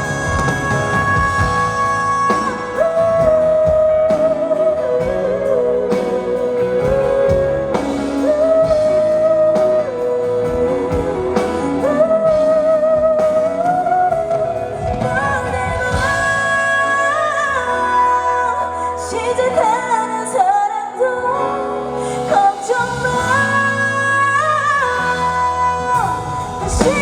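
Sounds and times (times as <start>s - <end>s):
steady drum beat: 0.0s - 4.1s, 26.2s - 27.0s
pop ballad over concert speakers: 0.0s - 27.0s.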